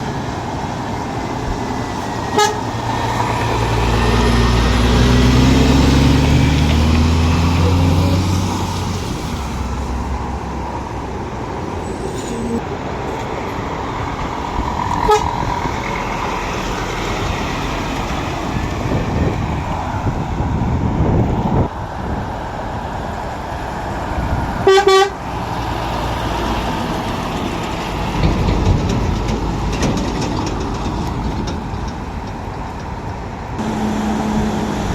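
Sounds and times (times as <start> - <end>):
lorries running and passing: 0.0 - 34.9
short horn toots: 24.7 - 25.2.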